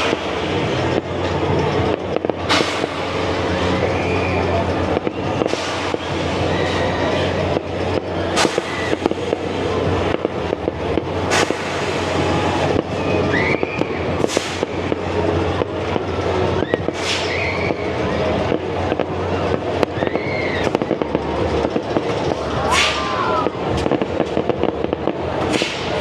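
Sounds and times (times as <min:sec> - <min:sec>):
firework booms: 0:00.0 - 0:20.1
low rumble: 0:00.0 - 0:25.4
fireworks crackling: 0:00.0 - 0:26.0.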